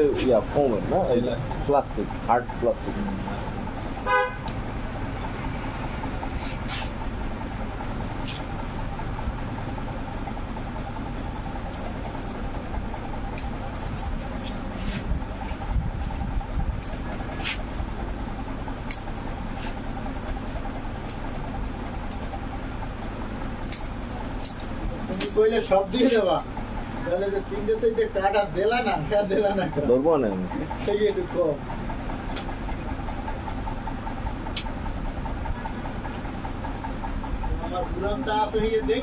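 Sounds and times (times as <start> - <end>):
street traffic rumble: 0.0 - 39.0
vehicle horn toot: 4.0 - 4.5.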